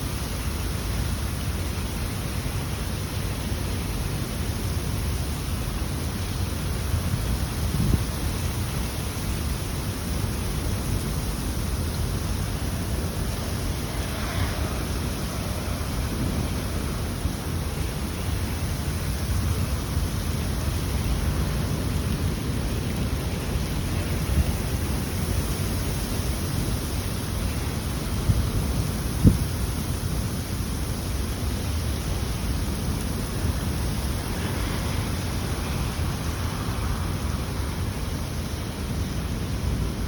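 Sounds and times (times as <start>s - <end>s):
rain: 0.0s - 40.0s
steady wind: 0.0s - 40.0s
heavy low thunder rumble: 12.0s - 25.9s.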